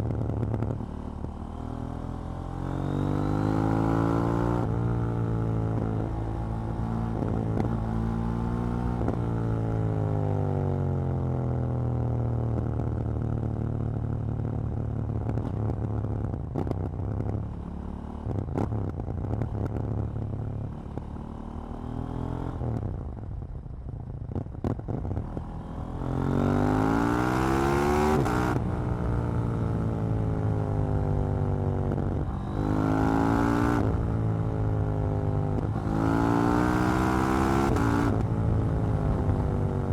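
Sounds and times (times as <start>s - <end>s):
motorcycle engine revving: 31.8s - 39.9s.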